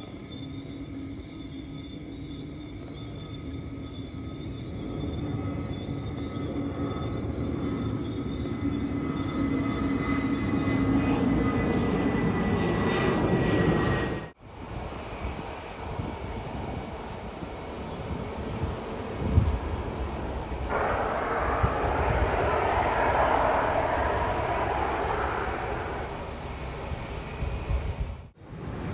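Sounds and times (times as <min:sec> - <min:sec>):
jet engines whining: 0:00.0 - 0:28.9
rough engine rumble: 0:19.4 - 0:28.9
loud jet roar: 0:20.6 - 0:27.9.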